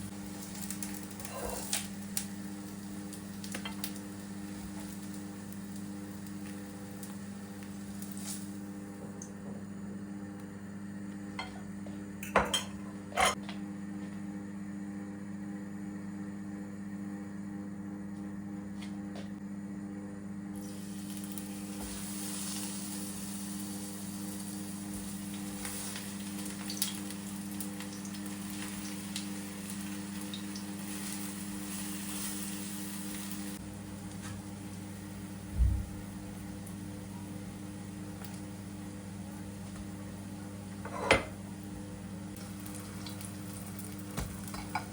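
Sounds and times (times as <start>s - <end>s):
food sizzling in a pan: 0.0s - 8.9s, 20.6s - 40.2s, 42.3s - 44.9s
utensil clinking on cookware: 12.2s - 13.4s.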